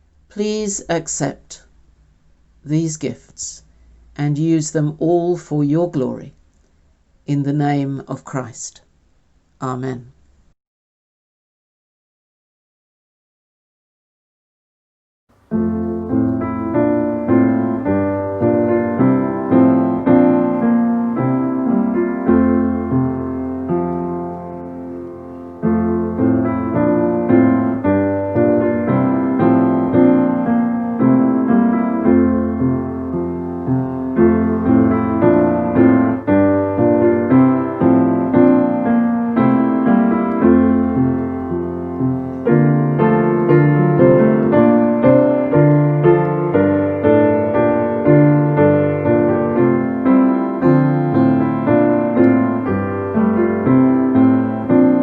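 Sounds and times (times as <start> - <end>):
hymn-like piano music: 15.3 - 55.0.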